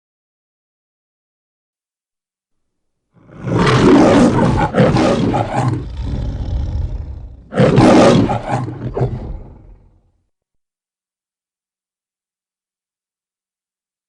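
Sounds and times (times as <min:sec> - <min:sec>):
lion roaring: 0:03.2 - 0:10.1.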